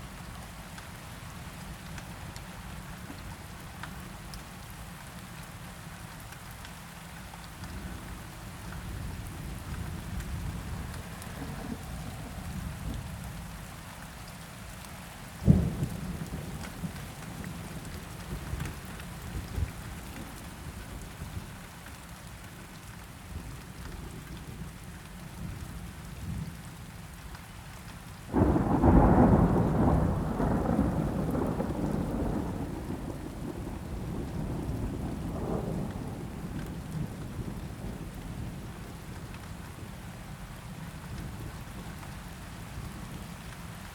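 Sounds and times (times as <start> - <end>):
steady rain: 0.0 - 43.9
thunder rumbling: 28.3 - 38.8.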